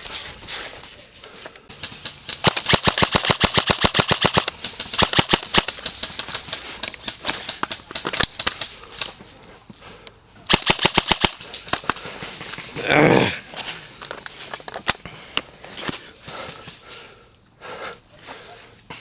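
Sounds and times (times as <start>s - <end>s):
airsoft rifle shots: 1.7s - 6.3s, 10.5s - 12.0s.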